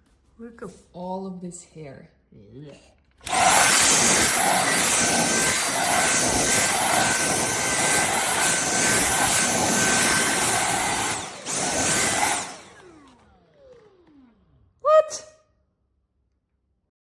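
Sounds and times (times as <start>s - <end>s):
cordless vacuum whining: 3.2s - 14.8s.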